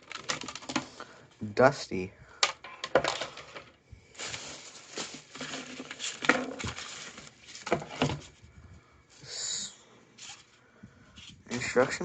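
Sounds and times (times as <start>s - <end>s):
papers rustling: 0.0s - 1.0s, 2.4s - 8.4s, 11.2s - 12.0s.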